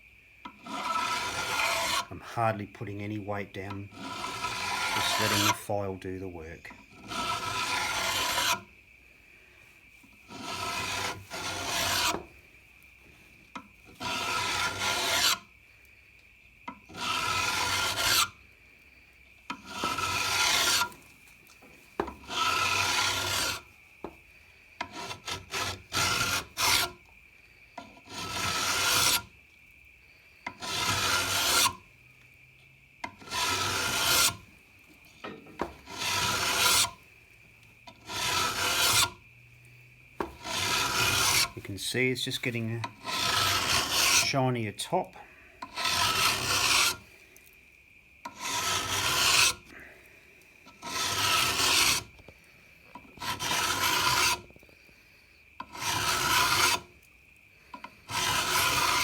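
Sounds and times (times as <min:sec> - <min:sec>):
hand file rasping on steel: 0:00.6 - 0:02.2, 0:02.8 - 0:05.9, 0:06.9 - 0:08.6, 0:10.2 - 0:12.3, 0:13.9 - 0:15.4, 0:16.9 - 0:18.4, 0:19.5 - 0:21.0, 0:22.1 - 0:23.7, 0:24.8 - 0:27.0, 0:27.8 - 0:29.3, 0:30.5 - 0:31.8, 0:33.2 - 0:34.4, 0:35.7 - 0:37.0, 0:37.9 - 0:39.2, 0:40.2 - 0:44.5, 0:45.6 - 0:47.0, 0:48.3 - 0:49.7, 0:50.7 - 0:52.1, 0:53.0 - 0:54.5, 0:55.6 - 0:56.9, 0:58.0 - 0:59.0.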